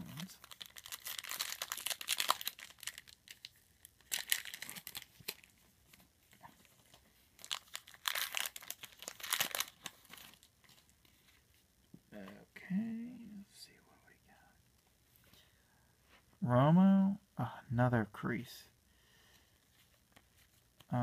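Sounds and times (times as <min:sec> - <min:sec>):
card pack wrapper crinkling: 0:00.0 - 0:05.6, 0:06.8 - 0:11.4.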